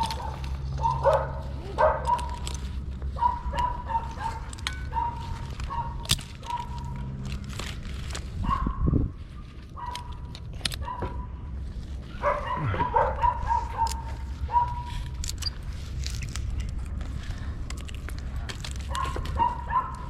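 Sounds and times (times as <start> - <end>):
animal whining calls: 12.1 - 14.9.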